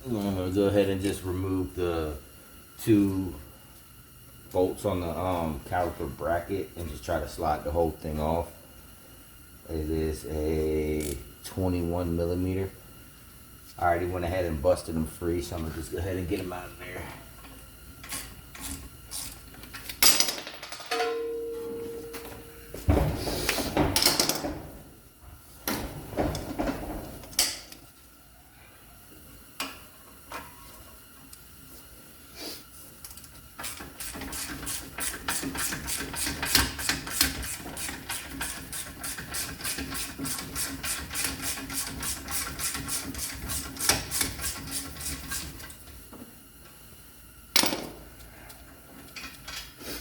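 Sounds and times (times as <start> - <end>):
hand ratchet clicking: 33.0 - 45.5.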